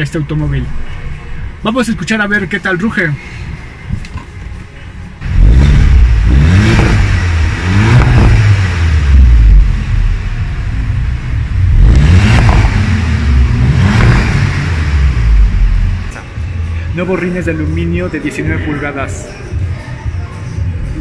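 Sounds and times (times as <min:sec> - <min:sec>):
car engine revving: 0:05.2 - 0:16.8.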